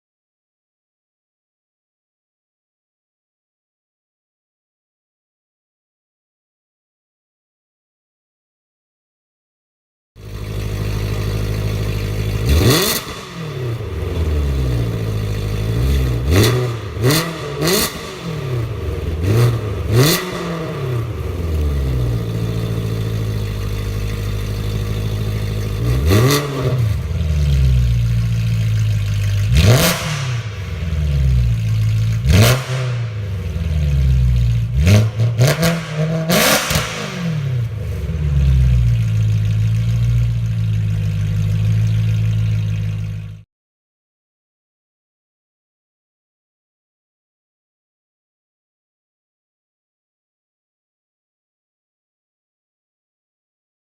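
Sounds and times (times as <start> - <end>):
car engine revving from idle: 10.2 - 43.4.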